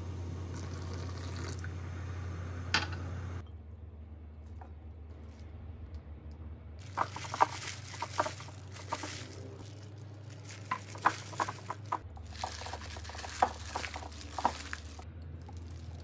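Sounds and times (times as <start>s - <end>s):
plastic glove crinkle: 6.8s - 16.0s
soft wet squishing: 6.8s - 16.0s.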